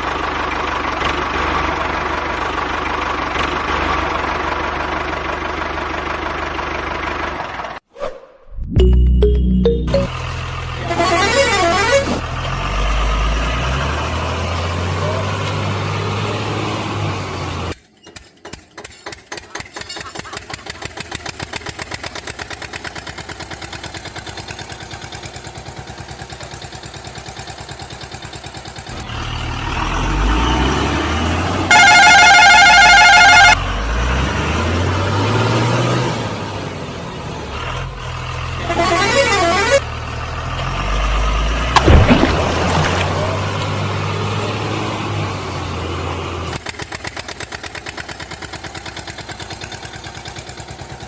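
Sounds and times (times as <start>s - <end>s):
truck engine running: 0.0s - 7.8s, 8.7s - 51.0s
warbling horn blast: 8.6s - 12.3s, 31.7s - 33.6s, 38.6s - 39.9s.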